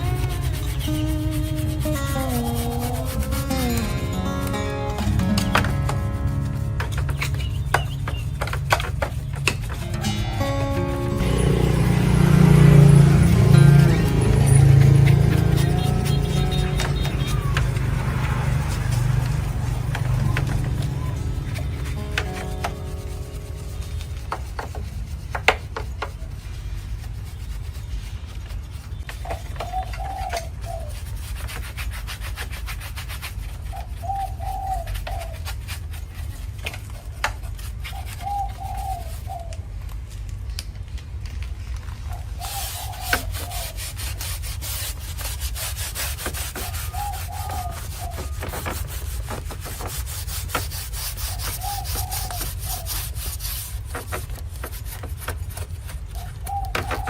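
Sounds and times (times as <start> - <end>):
scraping and rubbing: 0.0 - 4.6, 5.2 - 39.6, 41.3 - 57.0
dove cooing: 33.8 - 35.4, 38.2 - 39.6, 42.1 - 44.0, 46.6 - 49.2, 51.2 - 53.6, 56.1 - 57.0.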